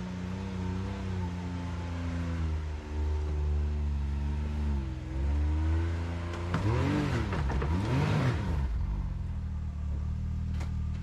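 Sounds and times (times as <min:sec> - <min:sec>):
engine revving: 0:04.1 - 0:09.2.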